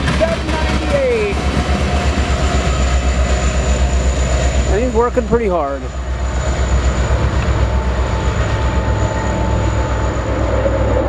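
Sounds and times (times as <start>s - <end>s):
locomotive engine rumbling: 0.0s - 11.0s
train wheels on rail: 0.0s - 11.0s
thin steady whine: 0.3s - 11.0s.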